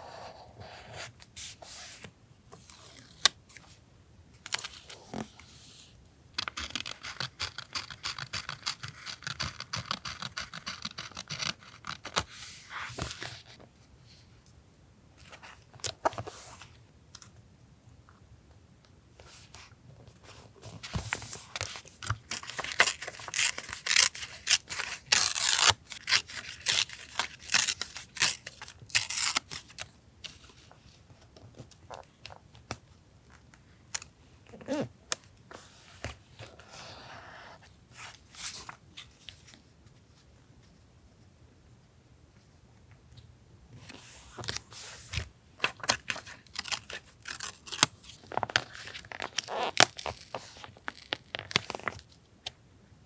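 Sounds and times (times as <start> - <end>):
paper tearing or cutting: 23.2 - 28.4.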